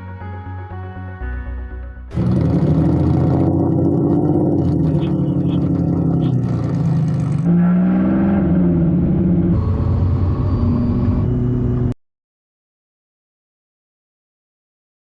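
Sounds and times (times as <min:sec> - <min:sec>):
car engine running under load: 0:02.1 - 0:07.5.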